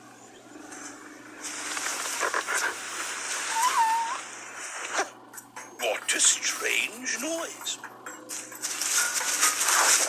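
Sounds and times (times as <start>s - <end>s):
elephant calf squeak: 3.5s - 4.2s
rough rustling noise: 8.3s - 10.0s.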